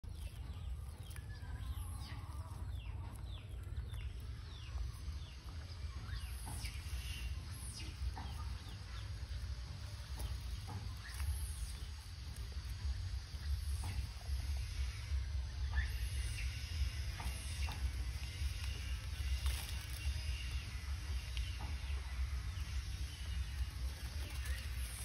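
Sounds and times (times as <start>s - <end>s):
birds chirping: 0.0s - 25.0s
steady low rumble: 0.0s - 25.0s.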